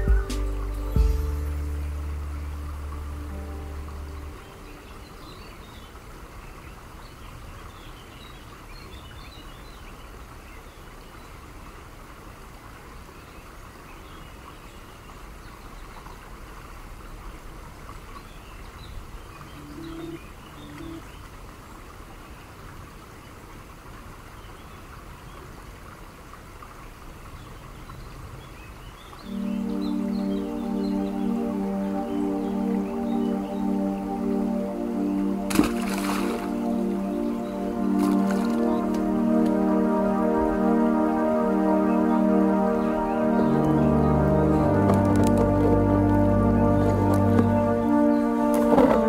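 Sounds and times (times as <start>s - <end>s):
short low notes: 0.0s - 5.0s, 29.3s - 49.0s
music: 0.0s - 5.2s, 19.6s - 21.0s, 29.3s - 49.0s
birds chirping: 0.0s - 10.8s, 18.2s - 21.8s, 27.4s - 49.0s
steady background hiss: 0.0s - 49.0s.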